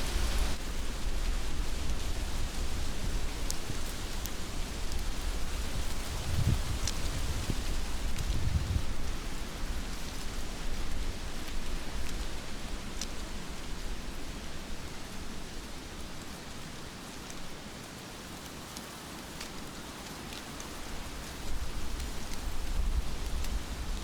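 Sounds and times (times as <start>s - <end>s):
heavy rain falling: 0.0s - 9.7s
raindrops striking close by: 0.0s - 24.0s.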